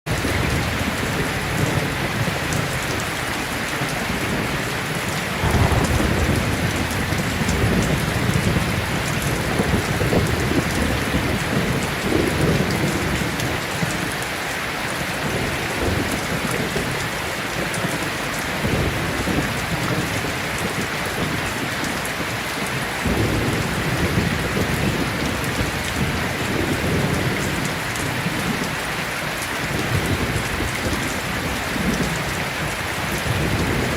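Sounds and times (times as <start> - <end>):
heavy rain falling: 0.1 - 33.9
rolling thunder rumbling: 3.6 - 13.3.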